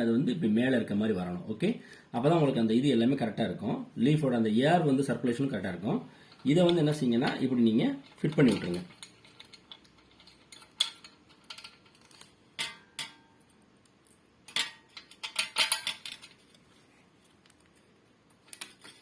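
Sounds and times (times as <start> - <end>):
metallic clinks and taps: 8.0 - 16.6.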